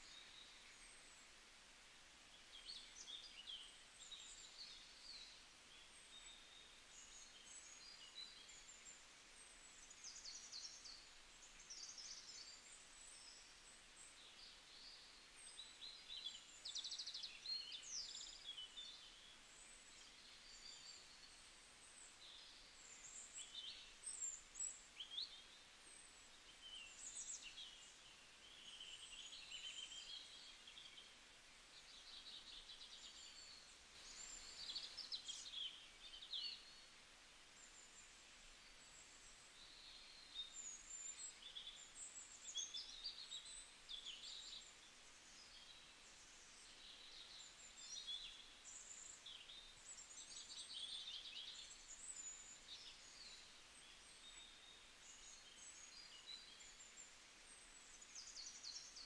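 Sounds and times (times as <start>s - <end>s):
low background hiss: 0.0s - 59.0s
small birds chirping: 2.2s - 59.0s.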